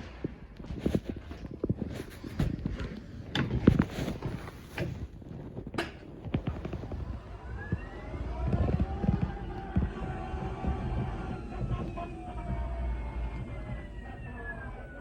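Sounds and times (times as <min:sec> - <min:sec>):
low rumble: 0:00.3 - 0:15.0
knocks and clattering: 0:02.4 - 0:07.0.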